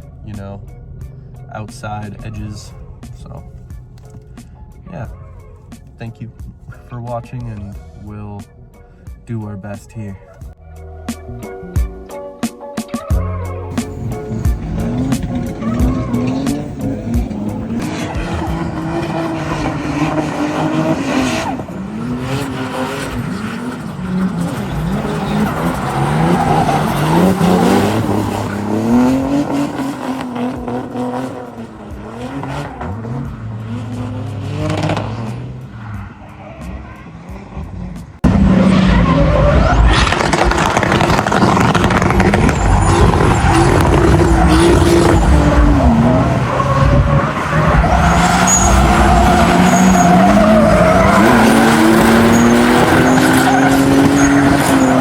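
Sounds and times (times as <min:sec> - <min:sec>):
car engines revving: 0:00.0 - 0:11.9, 0:13.7 - 0:55.0
tyres squealing: 0:13.7 - 0:37.2, 0:38.3 - 0:55.0.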